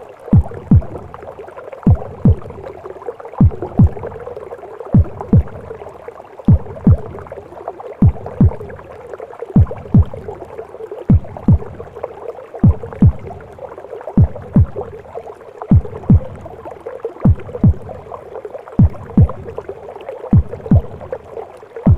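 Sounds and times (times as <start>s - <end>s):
whooshing gurgling womb wash: 0.0s - 21.9s
heartbeat thumps: 0.3s - 1.2s, 1.8s - 2.8s, 3.4s - 5.8s, 6.5s - 7.4s, 8.0s - 8.9s, 9.6s - 12.0s, 12.6s - 13.6s, 14.2s - 15.1s, 15.7s - 18.2s, 18.8s - 19.7s, 20.3s - 21.9s.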